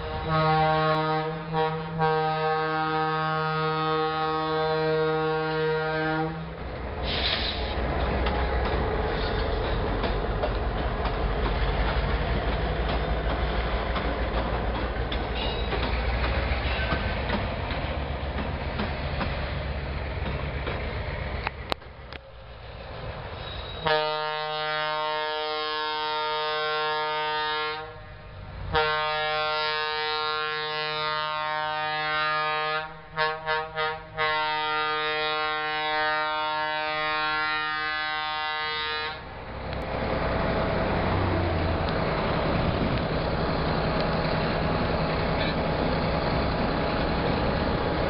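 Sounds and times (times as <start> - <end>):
freight train rumbling on rails: 0.0 - 48.0
wagons clickety-clack: 7.3 - 19.4.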